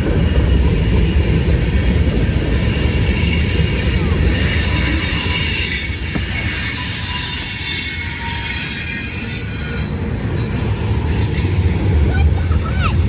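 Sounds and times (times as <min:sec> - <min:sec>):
freight train wheels rumbling on rails: 0:00.0 - 0:13.0
high-pitched wheel squeal: 0:02.2 - 0:10.0.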